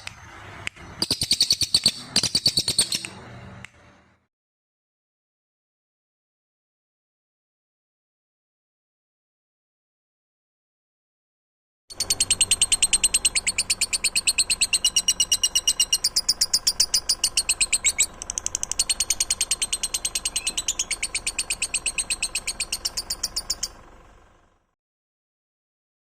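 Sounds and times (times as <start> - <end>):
songbird trilling: 1.0 - 3.2, 11.9 - 23.8.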